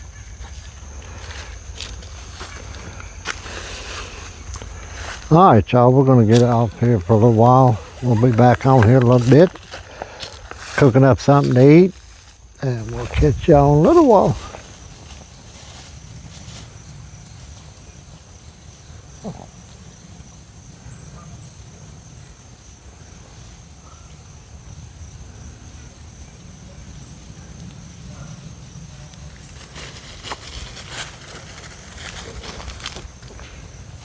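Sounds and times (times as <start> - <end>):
insects droning: 0.0 - 34.0
wind on microphone: 12.7 - 14.6.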